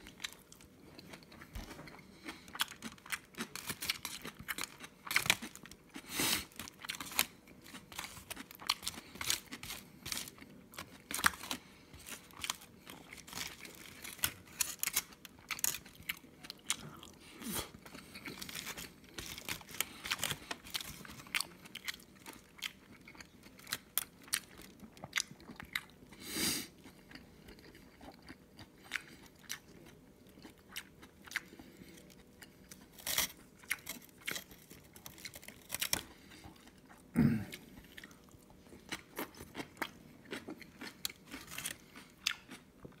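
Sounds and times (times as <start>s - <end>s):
chewing and crunching food: 0.0s - 43.0s
plastic spoon scraping foil: 13.2s - 15.8s.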